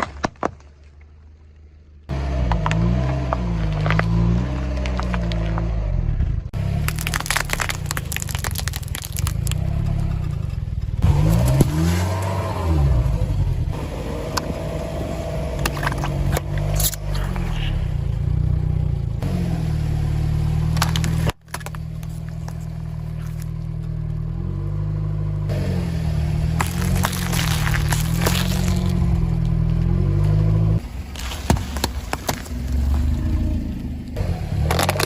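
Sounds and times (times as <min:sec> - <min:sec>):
car engine revving: 0:09.3 - 0:21.4.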